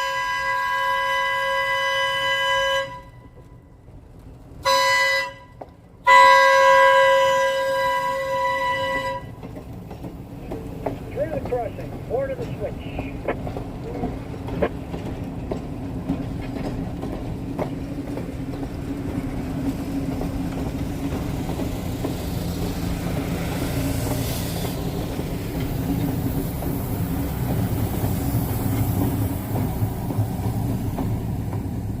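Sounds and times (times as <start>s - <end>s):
train rumbling: 0.0s - 32.0s
train wheels clicking: 0.0s - 32.0s
hiss: 21.6s - 31.4s.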